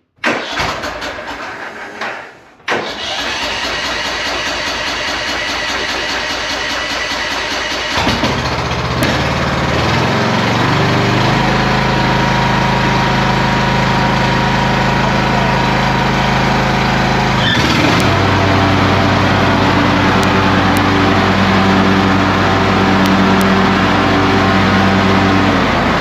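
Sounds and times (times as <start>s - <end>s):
starter motor cranking: 2.8s - 9.2s
lawn mower engine running: 2.9s - 26.0s.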